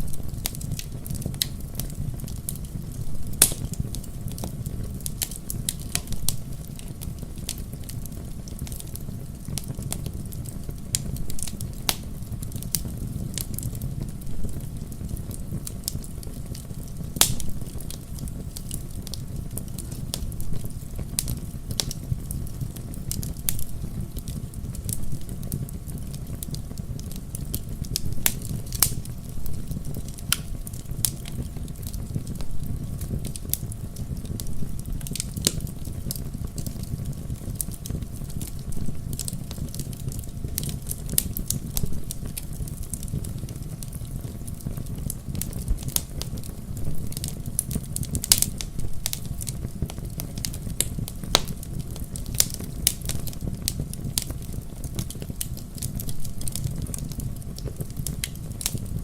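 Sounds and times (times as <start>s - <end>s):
low rumble of flames: 0.0s - 59.0s
wood fire crackling: 0.0s - 59.0s.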